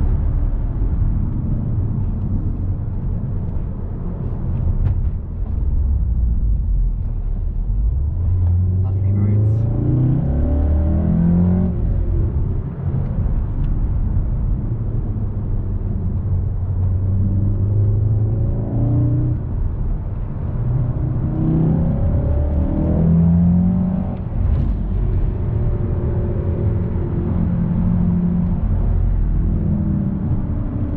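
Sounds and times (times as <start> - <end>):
car engine revving: 0.0 - 30.9.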